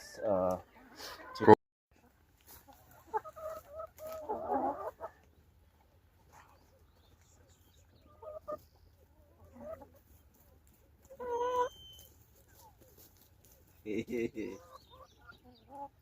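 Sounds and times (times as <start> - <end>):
hens clucking: 0.1 - 16.0.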